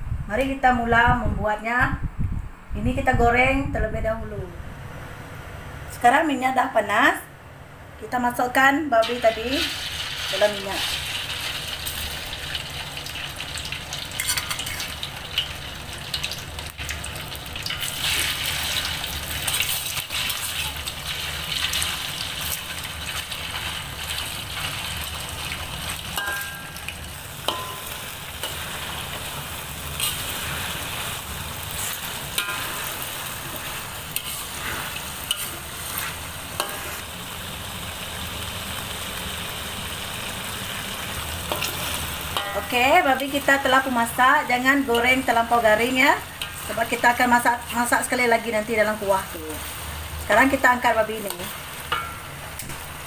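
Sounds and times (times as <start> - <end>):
meat sizzling in oil: 9.0 - 53.0
metal spatula scraping wok: 14.0 - 15.5, 17.6 - 37.2, 40.8 - 48.2.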